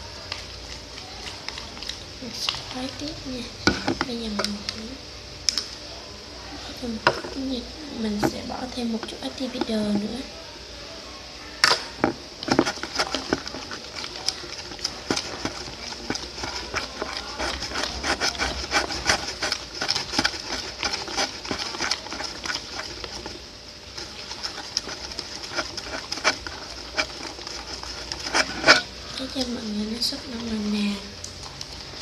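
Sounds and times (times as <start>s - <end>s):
sticky clicks of stirring slime: 5.4s - 5.7s, 11.6s - 29.6s.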